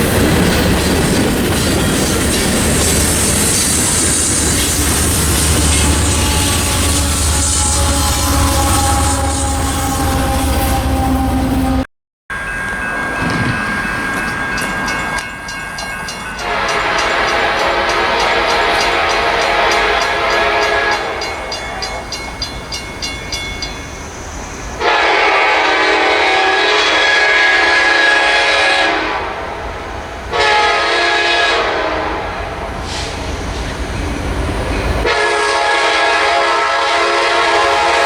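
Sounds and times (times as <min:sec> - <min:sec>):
train running noise: 0:00.0 - 0:38.0
locomotive air horn blasts: 0:05.0 - 0:11.9, 0:16.4 - 0:22.0, 0:24.8 - 0:29.5, 0:30.3 - 0:33.1, 0:35.0 - 0:38.0.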